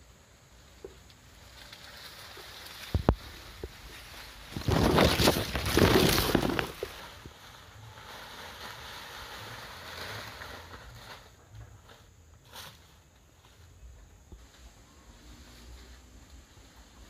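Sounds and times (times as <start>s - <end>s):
dry leaves rustling: 1.2s - 17.0s.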